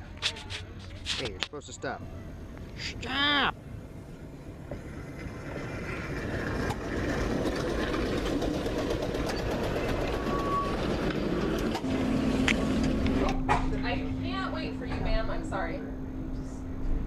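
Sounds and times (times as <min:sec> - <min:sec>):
streetcar wheels rumbling on rails: 0:03.6 - 0:15.8.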